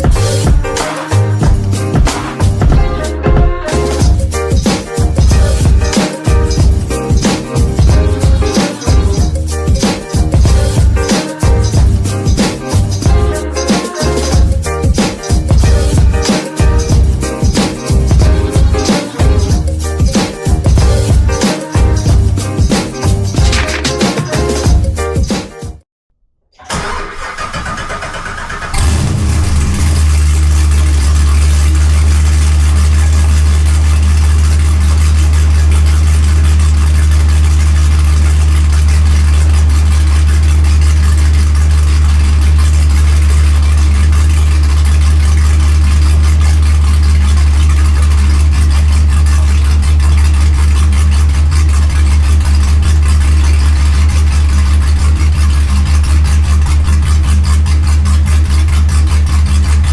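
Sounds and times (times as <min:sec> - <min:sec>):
car engine idling loud: 0:04.0 - 0:23.0, 0:26.7 - 0:59.9
engine starter cranking: 0:26.6 - 0:59.9.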